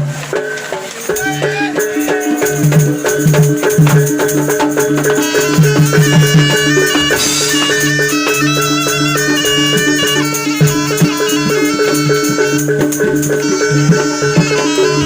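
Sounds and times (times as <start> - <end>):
percussion strikes: 0.0 - 15.0
shaker rattling: 0.1 - 15.0
gamelan ensemble playing: 0.4 - 15.0.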